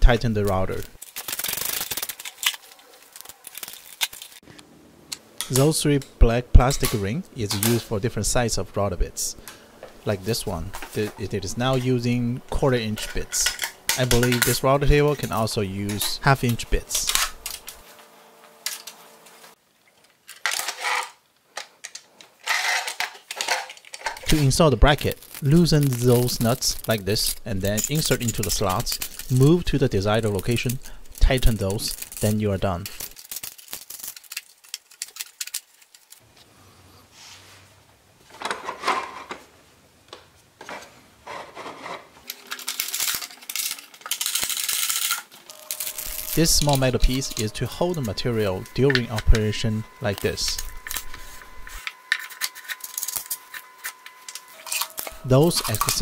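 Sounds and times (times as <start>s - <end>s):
small hard parts clattering: 0.7s - 4.5s, 12.8s - 17.8s, 19.8s - 36.2s, 40.6s - 56.0s
metal scraping: 41.3s - 56.0s.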